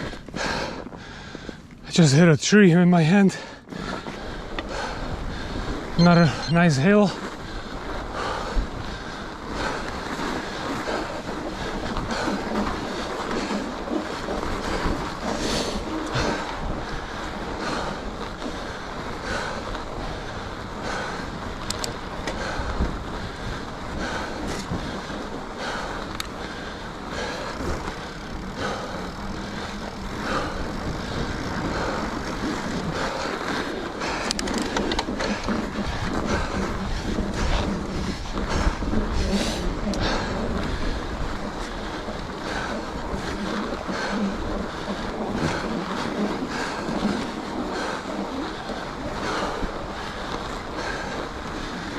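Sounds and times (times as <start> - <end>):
bike tyres rolling on snow: 0.0 - 51.9
wind rushing over microphone: 3.6 - 51.9
sharp clicks: 21.6 - 22.0.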